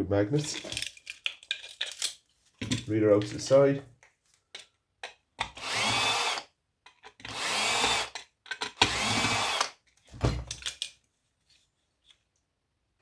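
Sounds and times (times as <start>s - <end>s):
power drill spinning: 5.5s - 6.5s, 7.2s - 8.2s, 8.8s - 9.8s.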